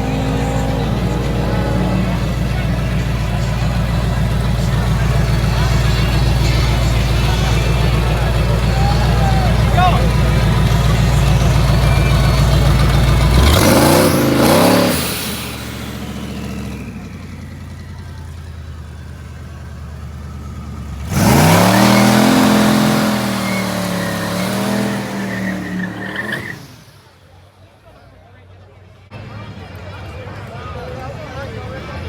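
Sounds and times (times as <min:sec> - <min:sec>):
engine pitch rising: 0:00.0 - 0:27.1
drag racing engine revving: 0:00.0 - 0:27.2.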